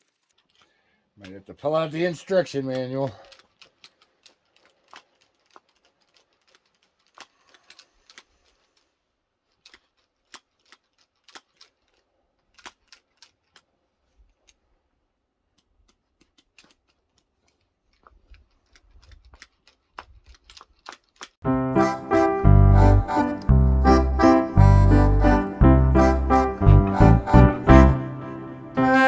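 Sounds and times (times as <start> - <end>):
grease gun clicking: 0.0 - 14.8, 15.4 - 21.4.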